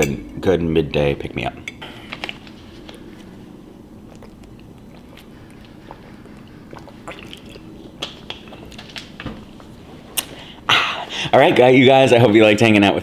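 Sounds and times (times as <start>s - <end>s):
chewing and mouth sounds: 2.2s - 10.7s.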